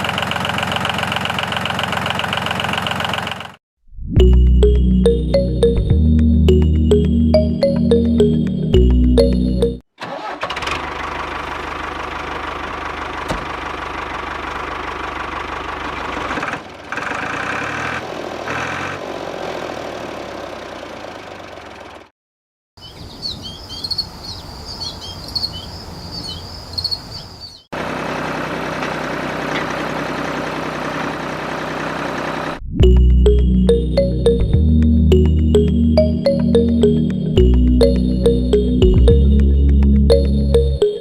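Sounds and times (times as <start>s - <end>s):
tractor diesel engine running: 0.0s - 3.6s, 8.8s - 18.4s, 19.8s - 22.1s, 27.8s - 40.8s
birds chirping: 22.8s - 27.7s.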